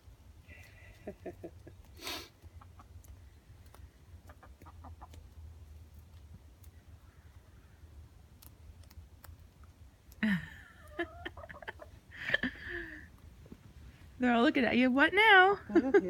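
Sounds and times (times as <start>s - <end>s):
hens clucking: 0.6s - 7.7s, 10.8s - 13.2s.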